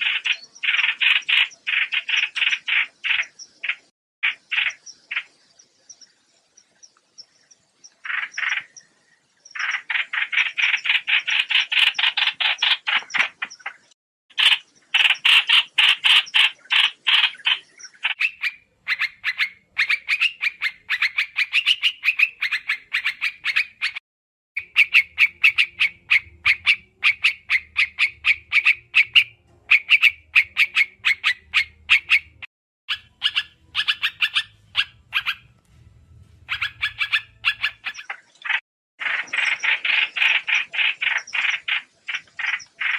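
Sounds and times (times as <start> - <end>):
songbird chattering call: 0.0 - 8.9, 9.5 - 24.0, 24.6 - 35.5, 36.5 - 42.9
faint low hum: 34.5 - 37.6.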